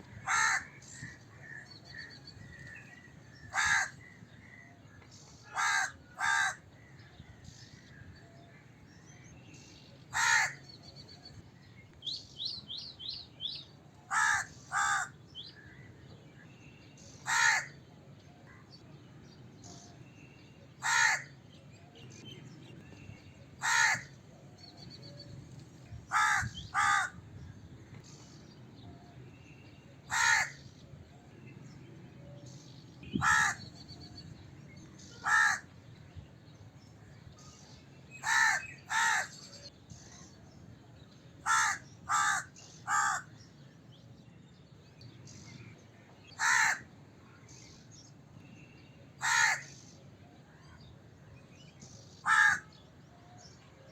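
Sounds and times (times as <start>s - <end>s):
faint background ambience: 0.0s - 53.9s
crow cawing: 0.1s - 2.0s, 3.4s - 4.1s, 5.5s - 6.6s, 10.1s - 10.6s, 14.1s - 15.8s, 17.2s - 17.8s, 20.8s - 21.3s, 23.6s - 24.2s, 26.1s - 27.2s, 30.1s - 30.6s, 33.2s - 33.7s, 35.2s - 35.6s, 38.2s - 39.3s, 41.4s - 43.3s, 46.4s - 46.8s, 49.2s - 49.7s, 52.2s - 52.7s.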